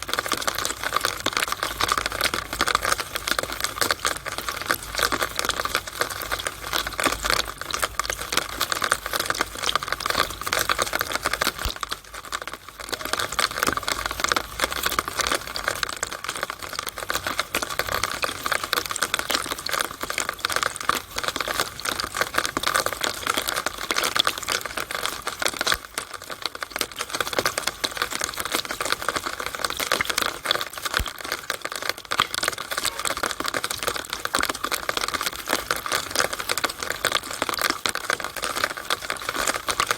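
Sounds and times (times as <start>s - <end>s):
rainwater splattering in downspout: 0.0s - 39.9s.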